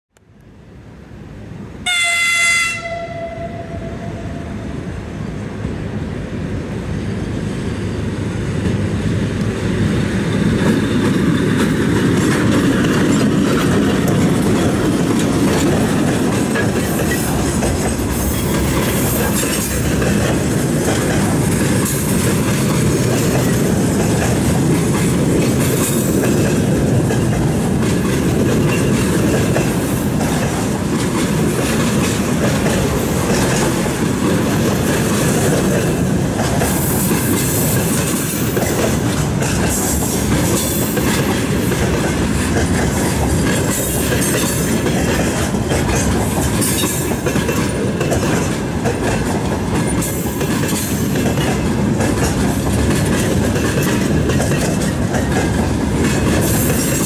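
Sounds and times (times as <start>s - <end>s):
freight train wheels rumbling: 0.2s - 57.0s
locomotive horn blast: 1.8s - 4.8s
wheels clacking over rail joints: 9.8s - 57.0s.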